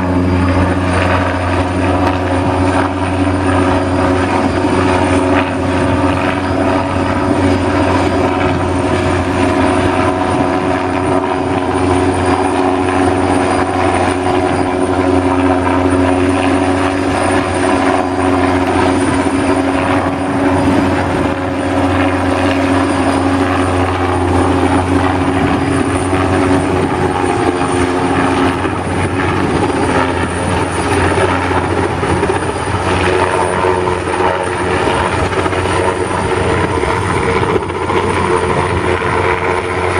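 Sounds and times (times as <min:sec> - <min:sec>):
machine droning: 0:00.0 - 0:39.9.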